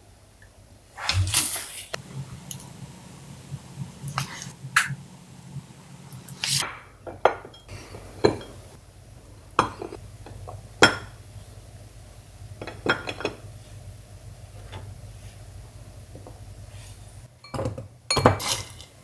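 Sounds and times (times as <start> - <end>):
dishes and utensils clinking: 6.6 - 8.8, 9.6 - 11.1, 12.6 - 13.5, 17.4 - 19.0.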